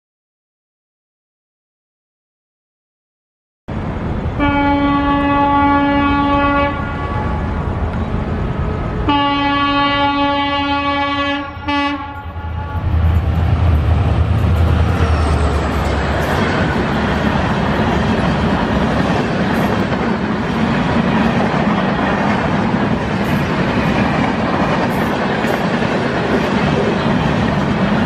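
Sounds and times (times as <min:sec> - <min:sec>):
train rumbling past: 0:03.7 - 0:28.0
locomotive horn blasts: 0:04.4 - 0:07.6, 0:09.1 - 0:13.1.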